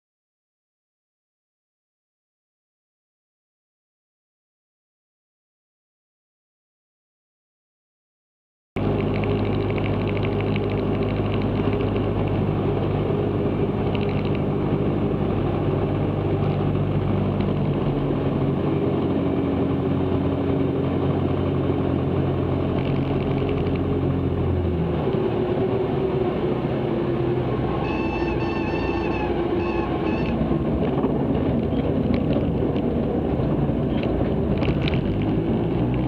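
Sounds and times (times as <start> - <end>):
aircraft engine and propeller: 8.8 - 36.0.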